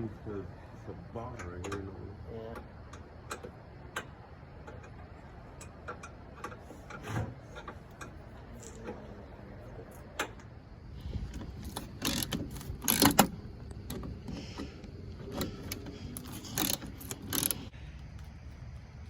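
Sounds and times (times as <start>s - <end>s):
ratchet wrench clicking: 11.6s - 14.6s, 15.3s - 17.7s.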